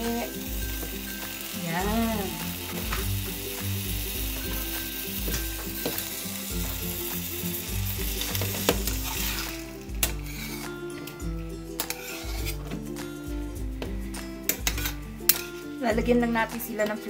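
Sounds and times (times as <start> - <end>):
chicken sizzling in a skillet: 0.0 - 11.2, 11.8 - 12.6.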